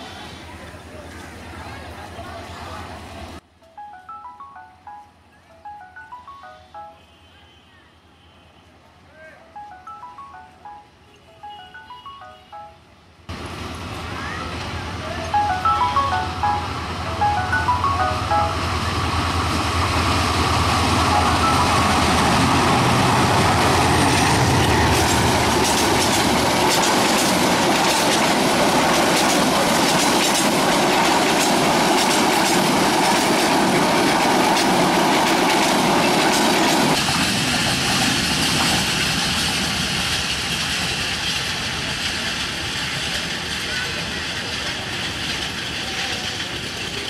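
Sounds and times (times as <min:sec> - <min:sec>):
diesel locomotive engine rumble: 0:13.3 - 0:47.0
train wheels clickety-clack: 0:23.2 - 0:47.0.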